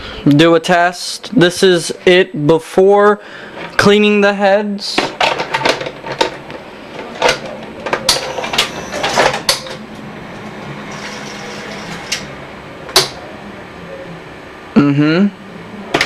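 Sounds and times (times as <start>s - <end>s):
sharp clicks and clunks: 5.0s - 9.8s
tape deck mechanism whirring: 5.2s - 13.2s.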